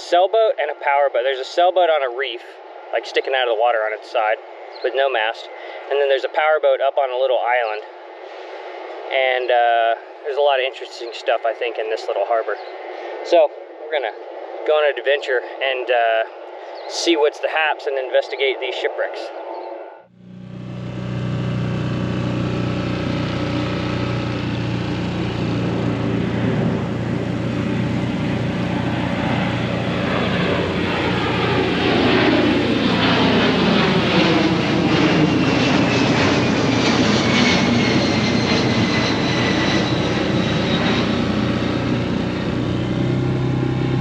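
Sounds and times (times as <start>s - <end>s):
airplane passing overhead: 0.0s - 44.0s
outboard motor drone: 20.1s - 44.0s.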